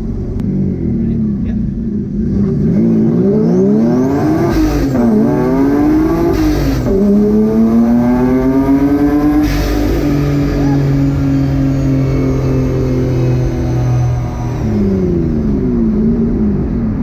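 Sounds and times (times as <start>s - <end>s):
car engine accelerating hard: 0.0s - 17.0s
rush of noise at gear shifts: 0.0s - 17.0s.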